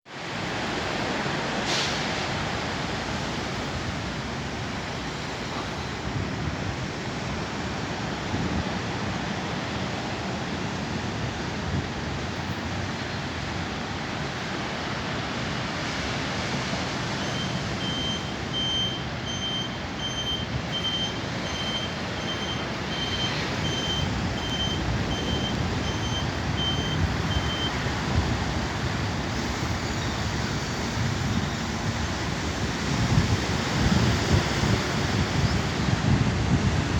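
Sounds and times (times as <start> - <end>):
high electronic beeps: 17.2 - 27.8.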